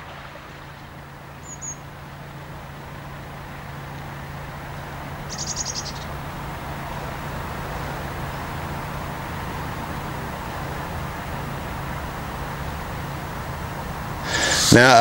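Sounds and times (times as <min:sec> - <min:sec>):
outdoor background noise: 0:00.0 - 0:15.0
bird trilling: 0:01.4 - 0:01.9, 0:05.2 - 0:06.2.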